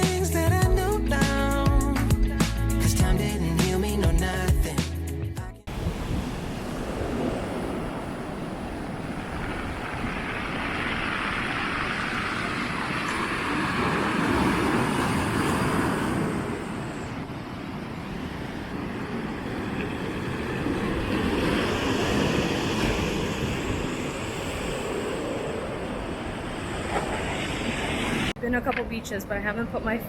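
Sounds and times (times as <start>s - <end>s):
surf rushing: 5.7s - 28.4s
wind: 5.7s - 30.0s.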